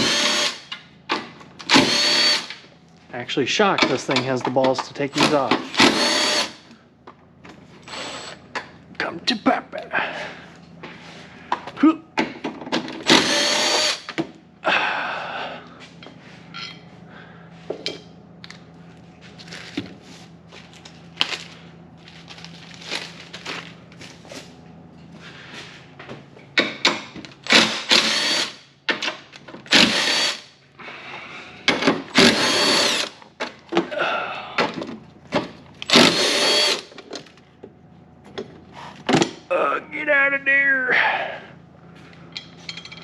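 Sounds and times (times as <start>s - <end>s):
power tool whining: 0.0s - 0.7s, 1.6s - 2.6s, 5.7s - 6.7s, 13.0s - 14.2s, 27.4s - 28.6s, 29.7s - 30.5s, 32.1s - 33.2s, 35.8s - 37.0s.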